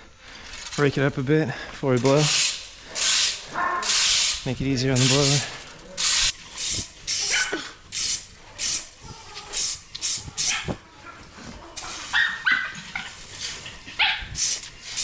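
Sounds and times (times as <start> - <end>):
rake scraping the ground: 1.9 - 7.7, 8.4 - 15.0
dog whimpering and yipping: 11.9 - 13.1.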